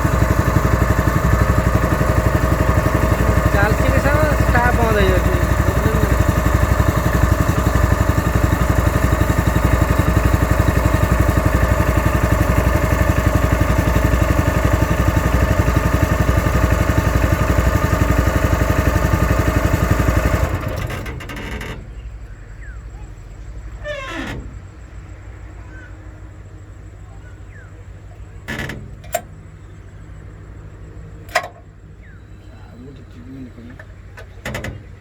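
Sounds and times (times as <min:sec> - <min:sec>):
small petrol pump engine running: 0:00.0 - 0:21.8.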